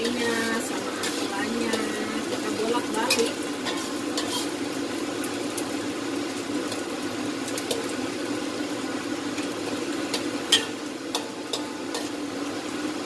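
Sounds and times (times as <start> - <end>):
metal spatula scraping a wok: 0.0 - 4.8
food sizzling in hot oil: 0.0 - 13.0.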